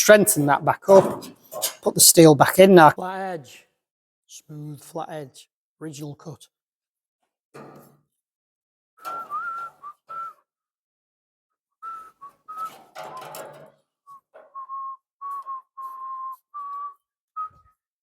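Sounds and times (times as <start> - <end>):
person whistling a tune: 9.1 - 10.5, 11.8 - 13.4, 14.1 - 17.9.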